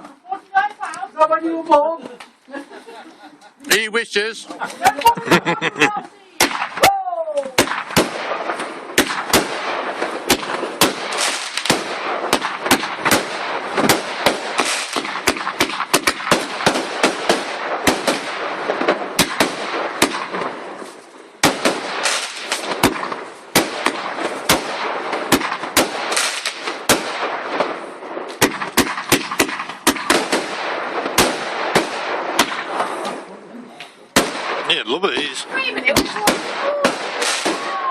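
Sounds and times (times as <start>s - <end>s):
fireworks bangs and crackle: 6.4s - 33.3s, 34.1s - 37.9s.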